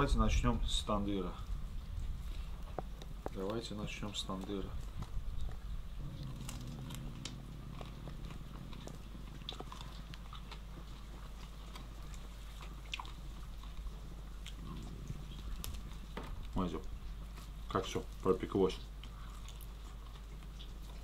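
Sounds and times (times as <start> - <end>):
steady low hum: 0.0 - 21.0
person chewing: 4.8 - 18.2, 18.8 - 21.0.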